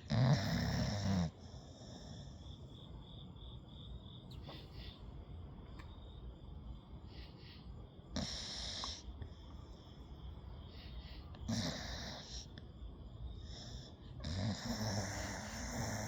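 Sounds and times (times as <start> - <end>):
puppy snoring: 0.0 - 2.4, 8.1 - 9.1, 11.4 - 12.6, 13.4 - 16.0.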